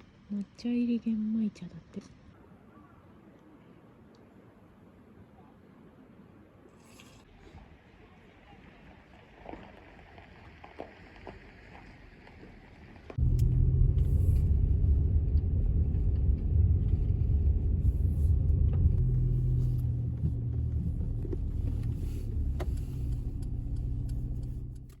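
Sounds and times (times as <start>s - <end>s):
steady low rumble: 13.2s - 25.0s.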